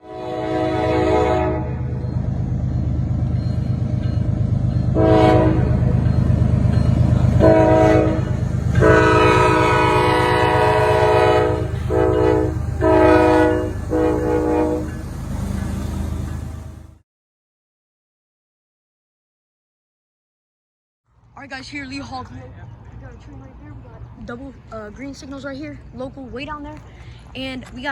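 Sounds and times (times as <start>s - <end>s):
locomotive air horn blasts: 0.0s - 1.9s, 4.9s - 6.0s, 7.4s - 15.0s
train rumbling: 0.0s - 17.0s, 21.2s - 27.9s.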